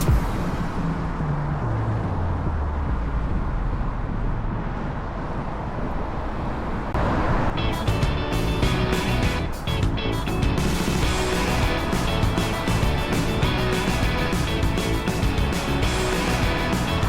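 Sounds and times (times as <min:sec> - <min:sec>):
road traffic noise: 0:00.0 - 0:17.0
vehicle engine running: 0:07.0 - 0:17.0.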